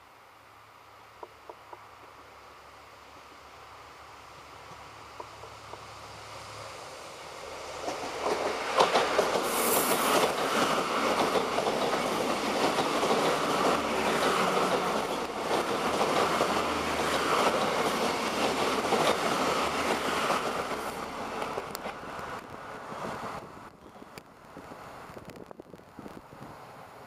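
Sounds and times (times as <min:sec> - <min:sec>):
train roar: 0:02.7 - 0:23.7
train wheels clicking and rumbling: 0:07.4 - 0:26.7.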